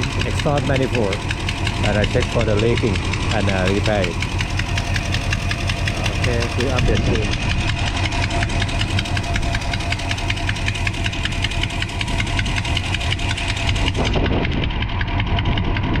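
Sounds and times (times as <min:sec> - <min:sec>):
rapid exhaust ticking: 0:00.0 - 0:15.9
engine idling: 0:00.0 - 0:16.0.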